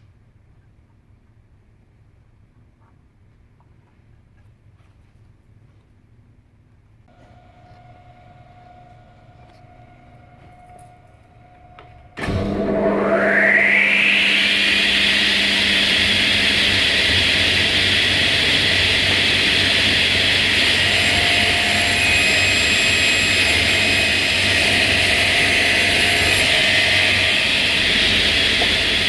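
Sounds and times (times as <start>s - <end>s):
power tool motor running: 7.1s - 29.0s.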